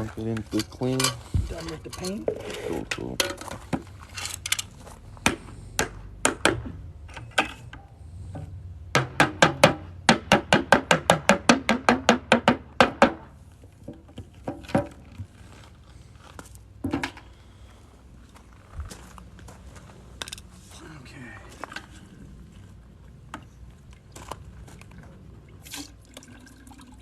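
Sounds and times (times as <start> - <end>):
hard knocks and taps: 8.4 - 13.3.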